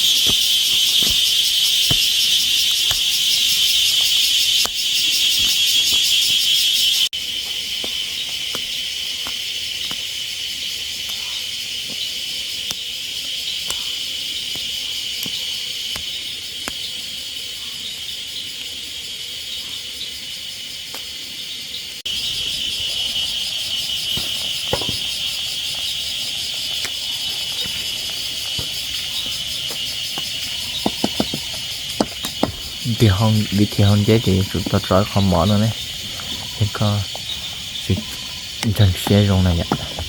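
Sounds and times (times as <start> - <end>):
insect chorus drone: 0.0 - 40.0.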